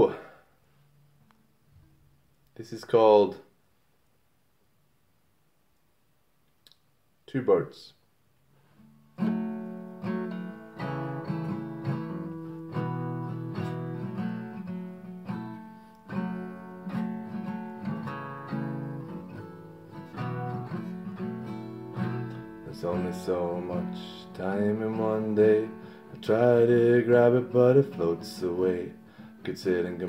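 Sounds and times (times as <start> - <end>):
acoustic guitar strumming: 8.8 - 30.0.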